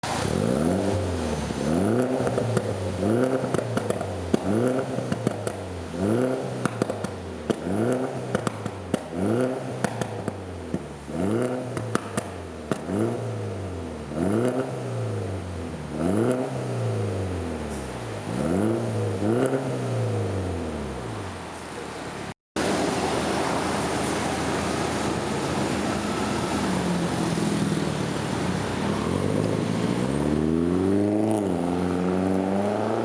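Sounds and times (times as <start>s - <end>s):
car engine revving: 0.0s - 21.3s, 22.6s - 33.0s
exhaust crackles and pops: 1.9s - 13.1s.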